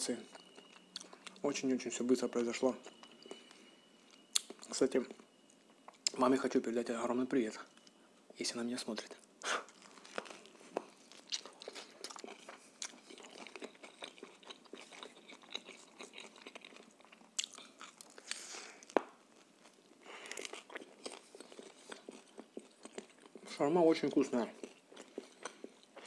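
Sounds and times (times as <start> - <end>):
chewing with clicks and crackles: 0.0 - 6.6, 7.4 - 8.0, 8.9 - 26.0
eating a wrap: 9.1 - 26.0.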